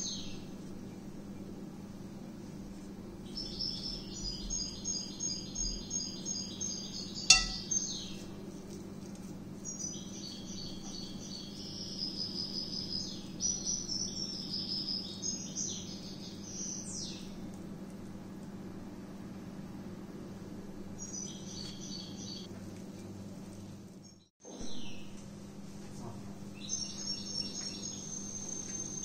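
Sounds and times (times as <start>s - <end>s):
bird chirping trills: 6.1s - 7.8s
bright chime-like strike: 7.3s - 7.6s.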